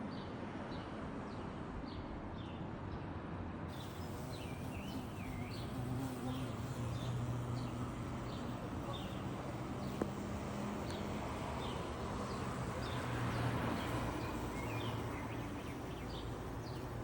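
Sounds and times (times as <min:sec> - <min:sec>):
small birds chirping: 0:03.7 - 0:17.0.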